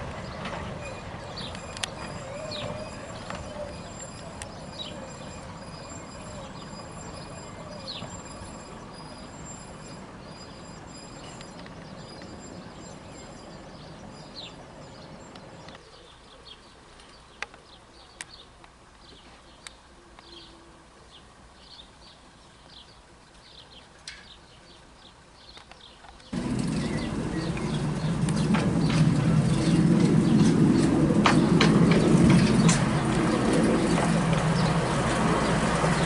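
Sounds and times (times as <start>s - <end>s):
train engine and wheels rumbling: 0.0s - 16.2s, 24.2s - 36.0s
small birds chirping: 0.2s - 36.0s.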